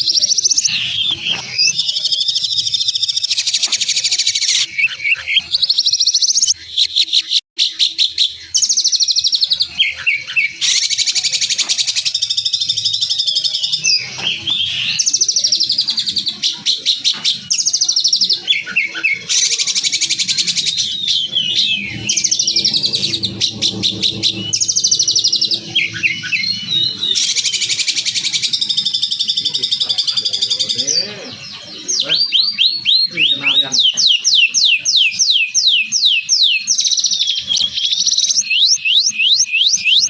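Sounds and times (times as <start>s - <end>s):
songbird harsh trills and chirps: 0.0s - 40.0s.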